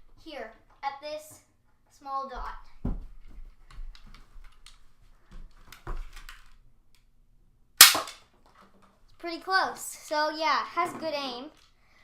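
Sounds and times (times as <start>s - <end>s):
toy blaster sharp snap: 7.8s - 8.2s.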